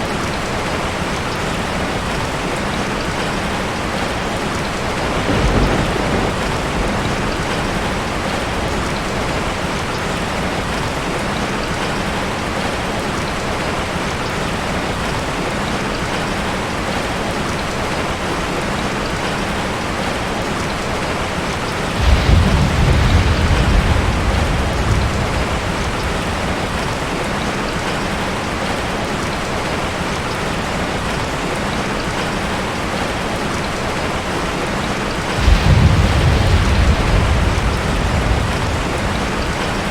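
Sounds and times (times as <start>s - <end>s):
heavy rain on a tin roof: 0.0s - 39.9s
thunder rumbling: 4.7s - 10.8s, 21.9s - 28.2s, 35.3s - 39.9s.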